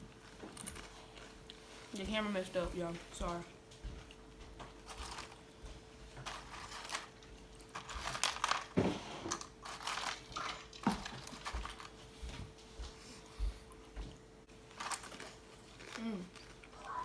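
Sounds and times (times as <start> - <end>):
chips crunching and crinkling: 0.0 - 2.0, 4.1 - 12.1, 14.5 - 17.0.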